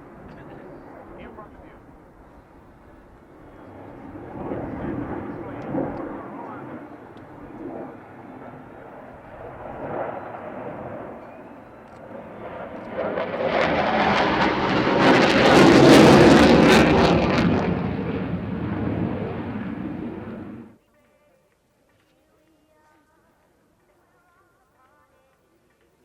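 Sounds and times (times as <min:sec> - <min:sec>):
jet flying past: 0:00.0 - 0:20.8.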